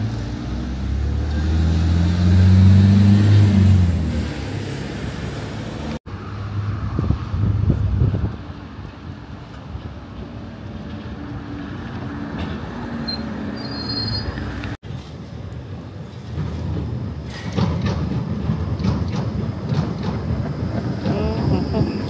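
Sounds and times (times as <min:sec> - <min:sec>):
tram rumbling on track: 0:00.0 - 0:22.0
tram clattering: 0:07.7 - 0:22.0
tram motor tones: 0:07.9 - 0:22.0
wheel squeals: 0:12.4 - 0:14.8.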